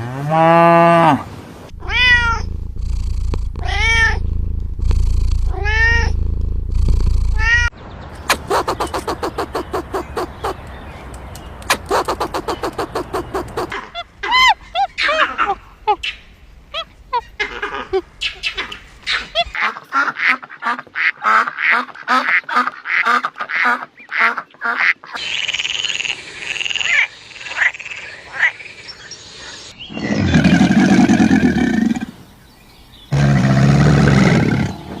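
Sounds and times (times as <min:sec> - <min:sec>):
short repeated animal calls: 0:08.3 - 0:10.6, 0:11.7 - 0:13.8.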